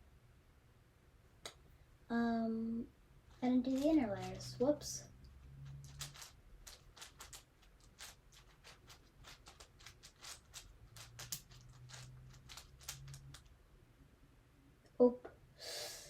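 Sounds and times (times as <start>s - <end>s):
plastic puzzle cube clicking: 5.8s - 13.5s.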